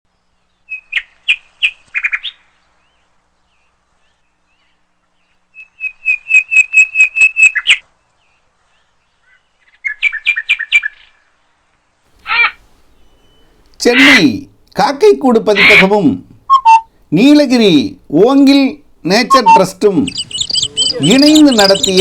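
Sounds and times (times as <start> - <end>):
bird whistling sharp notes: 16.5 - 16.9, 19.3 - 22.0.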